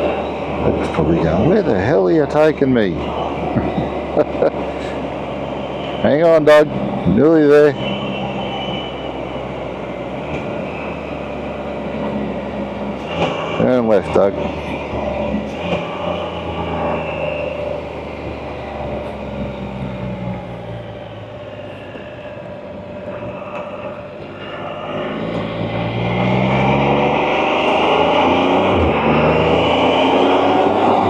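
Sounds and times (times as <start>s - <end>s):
motorcycle engine accelerating: 9.5s - 31.0s.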